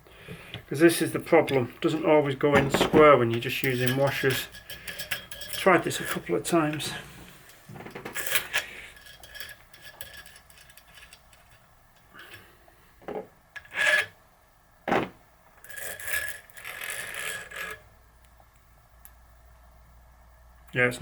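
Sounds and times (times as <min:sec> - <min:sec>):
metal scraping: 0:00.8 - 0:07.4, 0:08.1 - 0:12.5.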